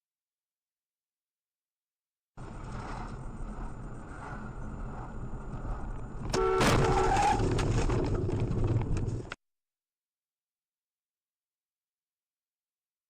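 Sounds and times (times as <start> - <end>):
car road noise: 2.4 - 9.4
car horn: 6.3 - 7.4.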